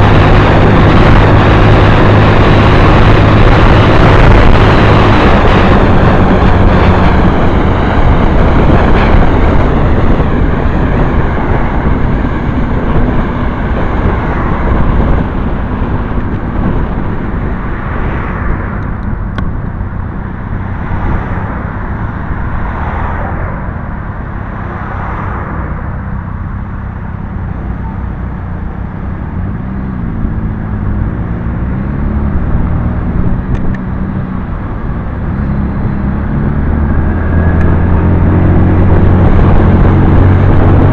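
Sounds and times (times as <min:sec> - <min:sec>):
motorcycle engine running: 0:00.0 - 0:22.4
loud rushing noise: 0:00.0 - 0:40.9.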